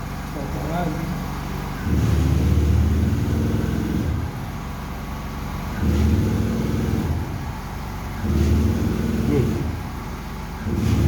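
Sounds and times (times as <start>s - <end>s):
boat diesel engine running: 0.0s - 11.0s.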